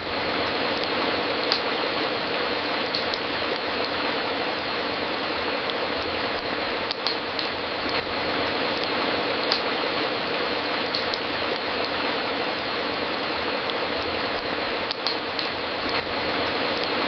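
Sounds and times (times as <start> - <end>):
wood fire crackling: 0.0 - 17.0
sharp pops from fire: 1.4 - 1.8, 2.9 - 4.0, 5.7 - 8.1, 8.8 - 9.8, 10.9 - 12.0, 13.7 - 16.1.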